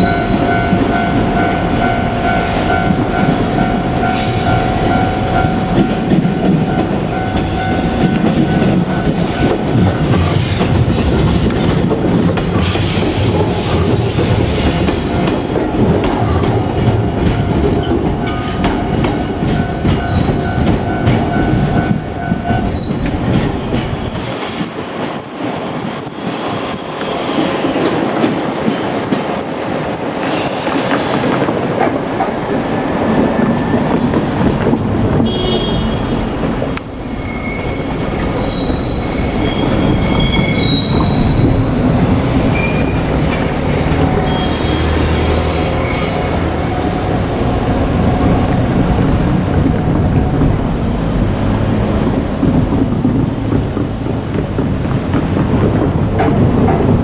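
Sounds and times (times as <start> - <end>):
train wheels clacking over rail joints: 0.0 - 57.0
high-pitched wheel squeals: 22.2 - 23.6, 36.8 - 46.9.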